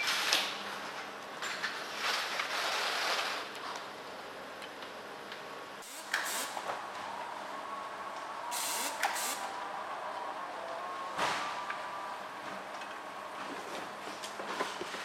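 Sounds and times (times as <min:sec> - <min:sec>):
hissing air bursts: 0:05.8 - 0:06.7, 0:08.5 - 0:09.6
factory machinery whining: 0:05.8 - 0:15.0.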